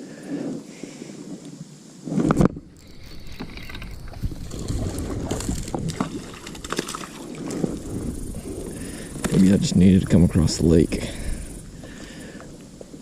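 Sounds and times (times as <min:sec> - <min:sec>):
water washing against kayak: 0:02.1 - 0:09.8.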